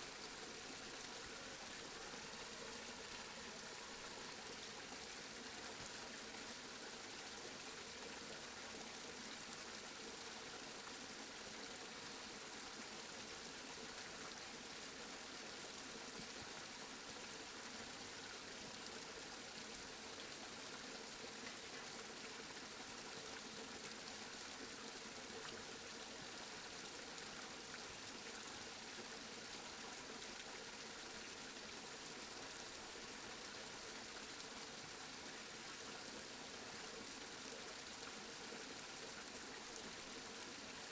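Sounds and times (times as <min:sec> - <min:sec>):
steady rain falling: 0:01.2 - 0:04.5.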